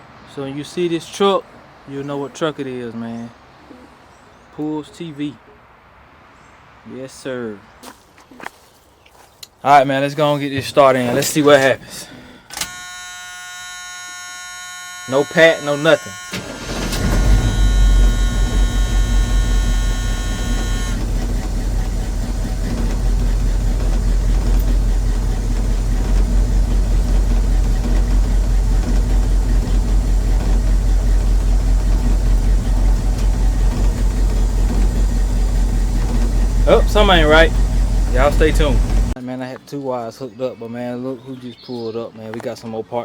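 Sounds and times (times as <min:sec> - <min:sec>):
steady buzzing tone: 0:12.7 - 0:39.2
engine running rough: 0:16.2 - 0:39.2.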